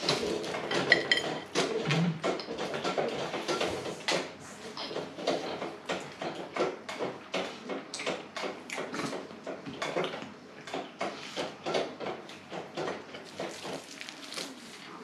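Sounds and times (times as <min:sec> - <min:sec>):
person chewing flatbread: 0:13.2 - 0:15.0.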